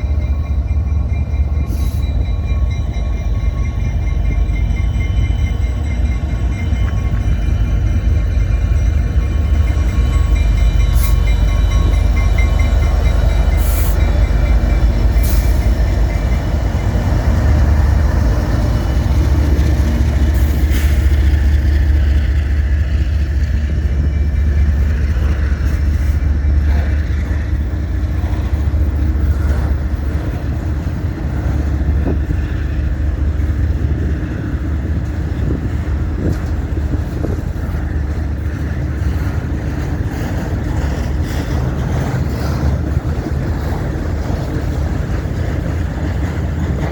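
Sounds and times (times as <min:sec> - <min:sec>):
freight train rumbling past: 0:00.0 - 0:46.9.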